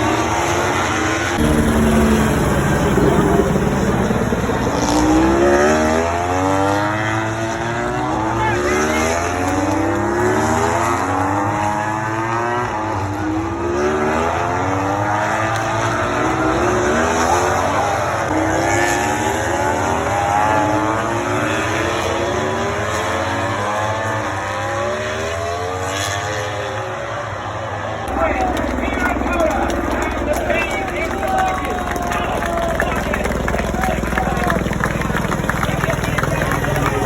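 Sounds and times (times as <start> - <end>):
racing motorcycles accelerating: 0.0 - 37.0.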